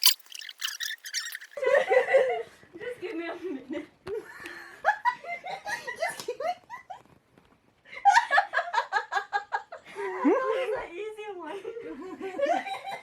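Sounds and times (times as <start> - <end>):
group of people laughing: 3.6 - 6.9, 11.6 - 13.0.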